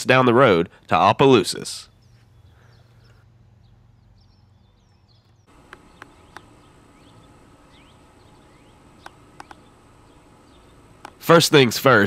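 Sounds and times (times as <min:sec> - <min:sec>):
birds chirping: 0:00.1 - 0:12.0
thin steady high whine: 0:04.9 - 0:12.0
sharp clicks: 0:05.2 - 0:06.6, 0:09.0 - 0:09.7, 0:11.0 - 0:11.3.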